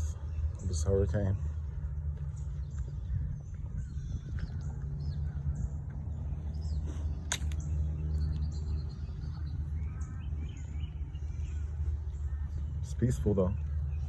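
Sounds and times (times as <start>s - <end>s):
low rumble: 0.0s - 12.9s
sharp click: 7.2s - 7.7s.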